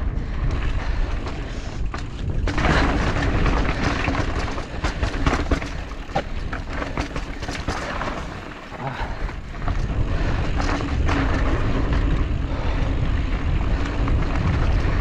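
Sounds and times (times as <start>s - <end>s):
wind buffeting microphone: 0.0s - 15.0s
bike clattering: 0.2s - 15.0s
tyres crunching over loose rock: 1.1s - 12.3s.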